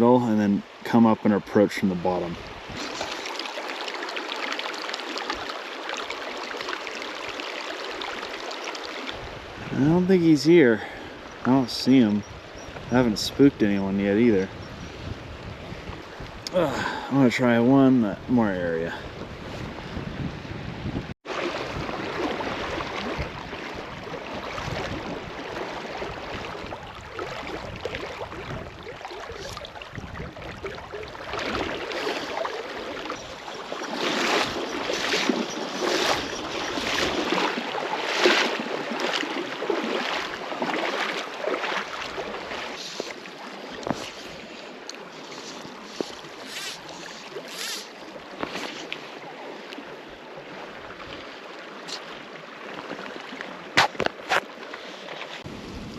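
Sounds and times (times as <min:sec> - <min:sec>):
river water flowing: 0:00.0 - 0:55.9
water sloshing and splashing: 0:01.5 - 0:10.1, 0:21.2 - 0:55.9
wind buffeting microphone: 0:12.1 - 0:17.1, 0:18.1 - 0:32.2.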